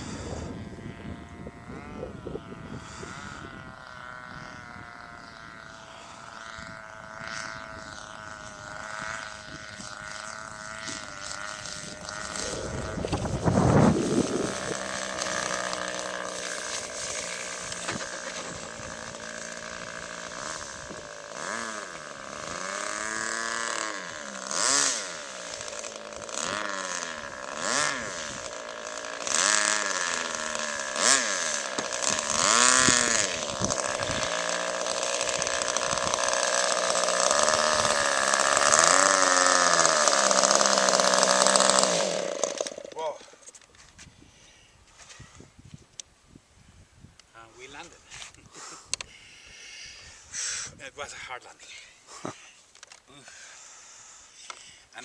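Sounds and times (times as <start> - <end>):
wind buffeting microphone: 0.0 - 22.8, 32.0 - 36.5, 45.2 - 47.2
model airplane engine running: 0.0 - 45.3.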